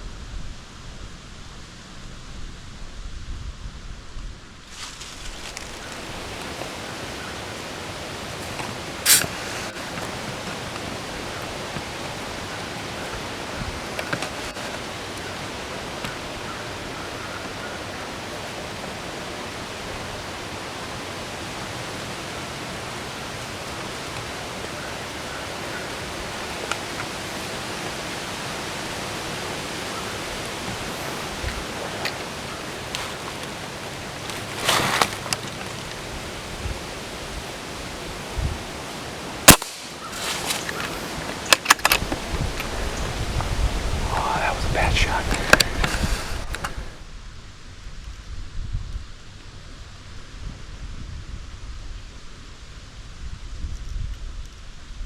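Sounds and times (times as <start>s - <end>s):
faint rustles: 4.6s - 19.0s, 29.2s - 36.9s, 39.7s - 47.0s
wind on microphone: 36.0s - 39.3s, 40.0s - 47.1s
gunshot: 39.5s - 39.9s.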